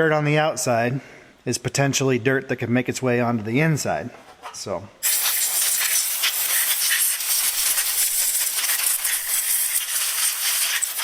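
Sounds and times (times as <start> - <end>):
compressed air blow gun hissing: 5.0 - 11.0.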